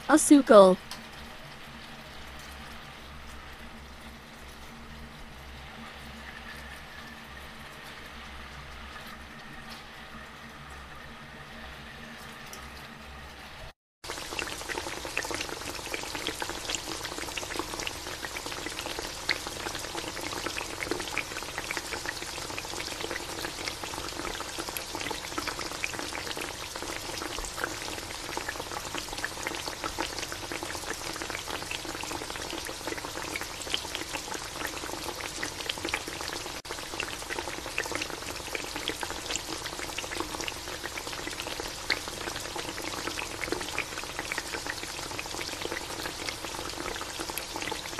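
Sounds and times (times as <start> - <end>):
sauce bubbling and sizzling in pan: 0.1 - 47.9.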